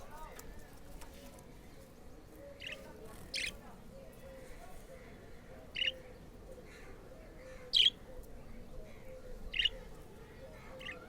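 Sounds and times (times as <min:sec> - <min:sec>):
budgerigar chirps: 0:05.8 - 0:06.0.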